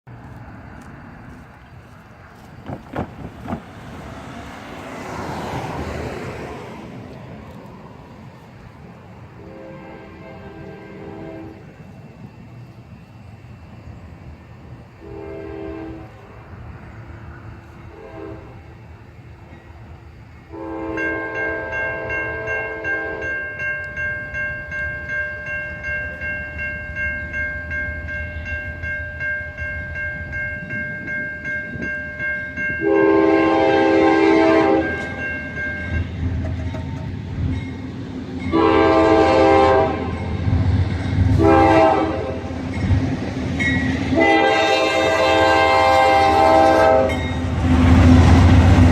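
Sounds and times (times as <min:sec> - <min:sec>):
locomotive rumble: 0:00.1 - 0:48.9
train horn blasts: 0:09.3 - 0:11.8, 0:15.0 - 0:16.3, 0:17.8 - 0:18.7, 0:20.5 - 0:23.4, 0:32.8 - 0:37.0, 0:38.5 - 0:40.5, 0:41.3 - 0:42.6, 0:44.0 - 0:48.4
crossing bell ringing: 0:20.6 - 0:40.6, 0:41.5 - 0:47.6.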